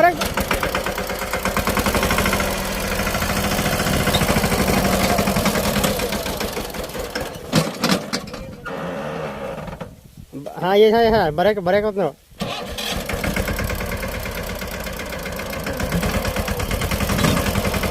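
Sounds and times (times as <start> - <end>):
tractor engine running: 0.0 - 8.5, 12.4 - 17.9.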